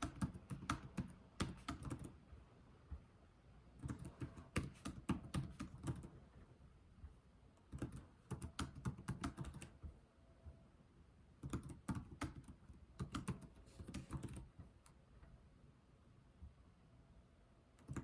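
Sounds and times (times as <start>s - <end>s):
computer keyboard typing: 0.0s - 2.2s, 3.8s - 6.2s, 7.6s - 9.8s, 11.4s - 14.5s, 17.8s - 18.0s.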